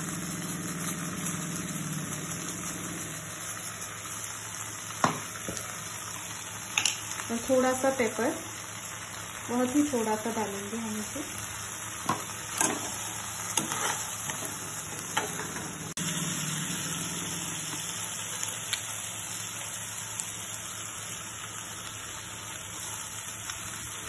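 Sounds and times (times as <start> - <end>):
filling sizzling in a frying pan: 0.0 - 24.0
metal spoon tapping a pan: 6.8 - 7.0.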